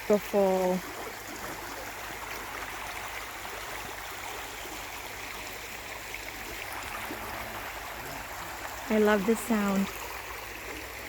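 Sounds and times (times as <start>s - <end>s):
creek water flowing: 0.0s - 11.0s.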